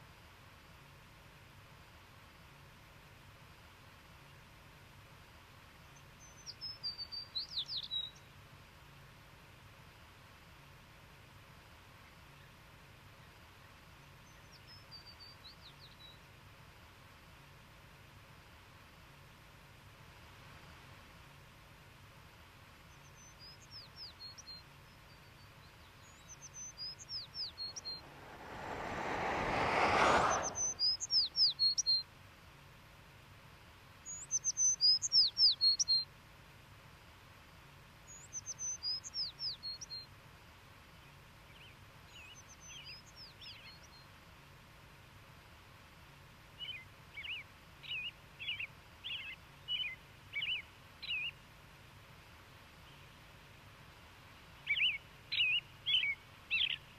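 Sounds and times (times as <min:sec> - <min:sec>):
rushing sound: 0:27.8 - 0:30.9
bird whistling high falling notes: 0:30.3 - 0:31.0.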